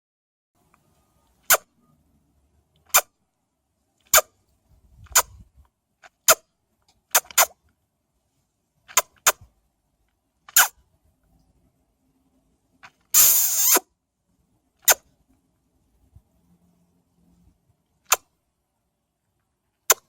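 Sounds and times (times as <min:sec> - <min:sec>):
short sharp clicks: 0:08.9 - 0:09.5, 0:18.1 - 0:18.3.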